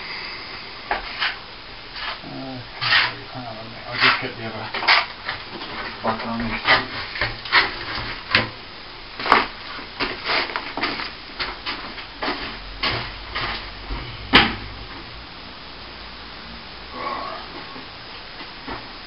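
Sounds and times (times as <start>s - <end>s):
plastering tools scraping and knocking: 2.8s - 3.2s, 3.9s - 8.5s.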